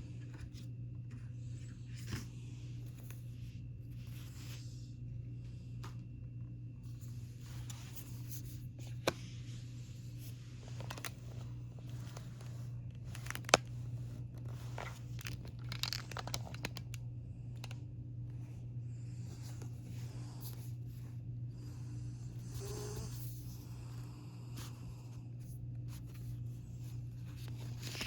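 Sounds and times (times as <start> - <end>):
paper and plastic crinkling: 10.2 - 17.0, 27.3 - 28.0.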